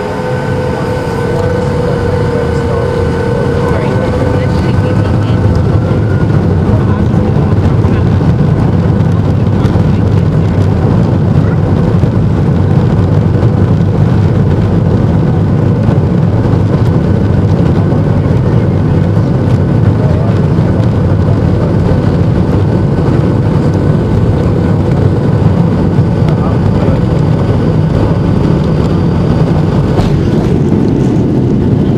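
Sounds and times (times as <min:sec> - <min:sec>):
steady tones: 0:00.0 - 0:10.7
jet engine drone: 0:00.0 - 0:31.9.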